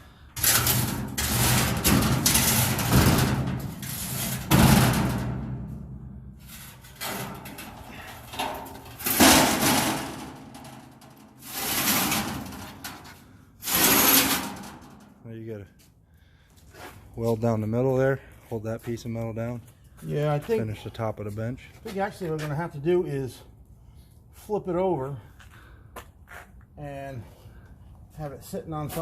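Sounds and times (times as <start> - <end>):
heavy metal clanks and scrapes: 0.4 - 15.2.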